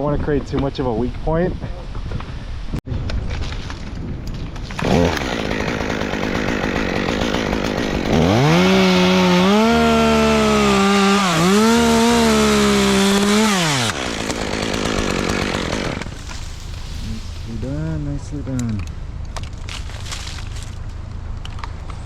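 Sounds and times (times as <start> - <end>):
chainsaw revving and cutting: 4.8 - 16.2
wind hiss: 16.0 - 20.8.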